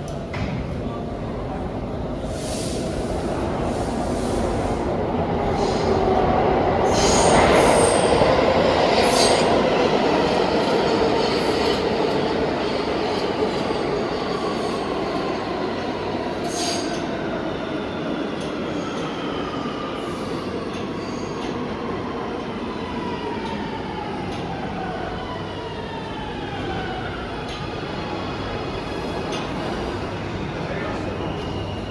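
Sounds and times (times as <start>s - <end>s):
subway train running: 0.0s - 31.9s
train wheel squeals: 6.8s - 8.2s, 16.3s - 21.7s, 27.4s - 31.9s.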